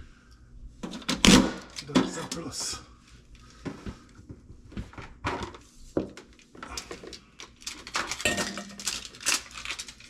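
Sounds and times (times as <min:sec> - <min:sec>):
objects knocking and clattering: 0:08.0 - 0:09.2.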